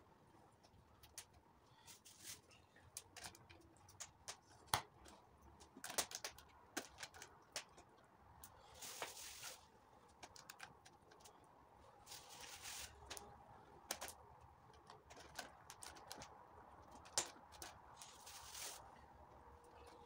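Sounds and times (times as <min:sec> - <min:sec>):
faint clicks and taps: 0:00.5 - 0:01.5, 0:10.0 - 0:11.5, 0:13.0 - 0:18.1.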